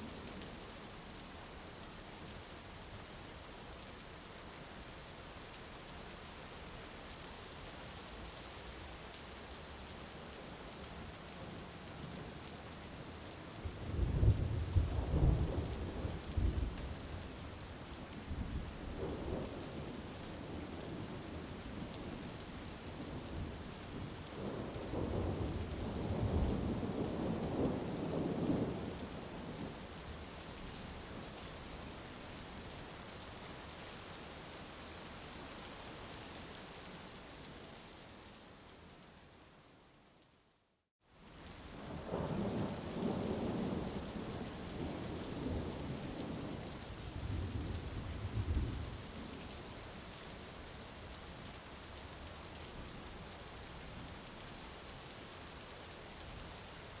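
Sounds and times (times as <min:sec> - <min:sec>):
heavy rain falling: 0:08.3 - 0:38.9, 0:41.1 - 0:57.0
low rumble of thunder: 0:13.6 - 0:17.3, 0:18.3 - 0:22.2, 0:23.0 - 0:29.8, 0:41.8 - 0:49.5.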